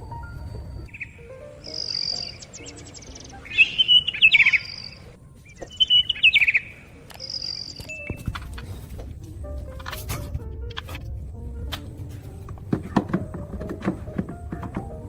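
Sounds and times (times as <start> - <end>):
high whistled bird notes: 0.8 - 8.2
bird chirping and trilling: 0.9 - 8.3.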